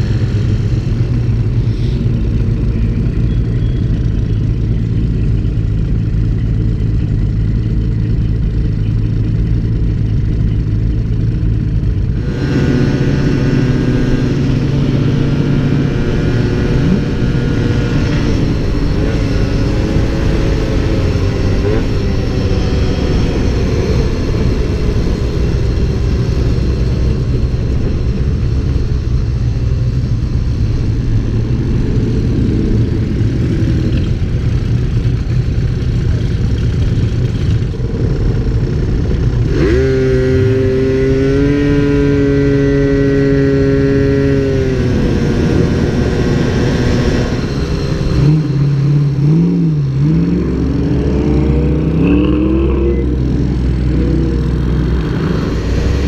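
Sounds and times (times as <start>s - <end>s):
low rumble: 0.0s - 41.6s, 44.5s - 56.0s
vehicle engines running: 0.0s - 56.0s
engine revving up: 39.4s - 56.0s.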